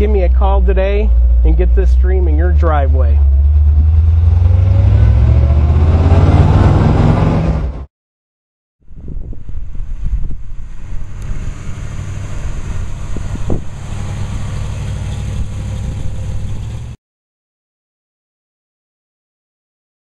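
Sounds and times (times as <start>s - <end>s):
car engine running: 0.0s - 7.8s, 9.6s - 17.0s.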